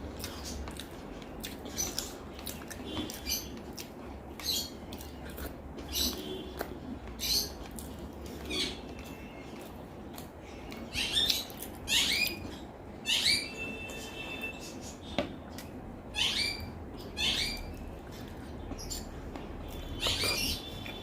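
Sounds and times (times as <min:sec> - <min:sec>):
wet chewing and lip smacks: 0:00.1 - 0:05.9.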